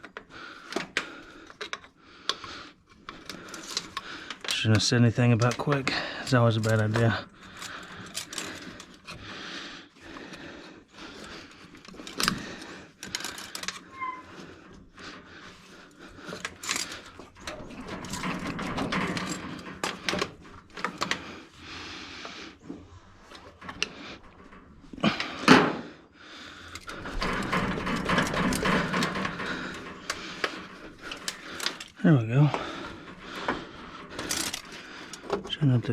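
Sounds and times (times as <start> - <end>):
hand tools clinking on metal: 26.7 - 35.9.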